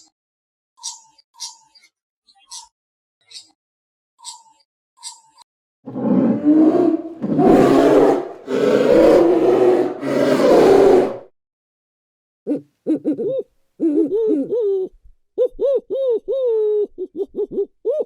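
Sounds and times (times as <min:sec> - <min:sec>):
large animal roaring: 0:05.9 - 0:11.3.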